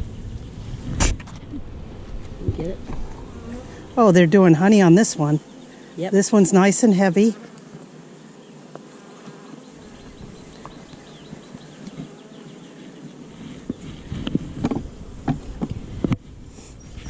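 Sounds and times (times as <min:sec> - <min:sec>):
low rumbles: 0:00.0 - 0:05.4
honeybees buzzing: 0:00.0 - 0:17.0.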